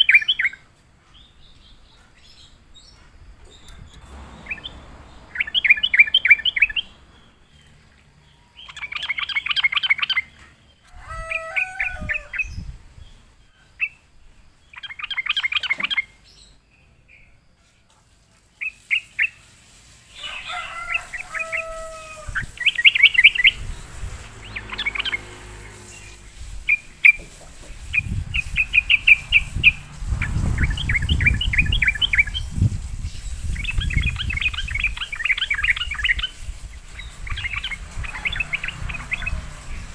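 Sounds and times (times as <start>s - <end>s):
bulbuls chattering and whistling: 0.0s - 14.1s, 14.7s - 17.4s, 18.5s - 39.9s
low rumble: 3.3s - 8.3s.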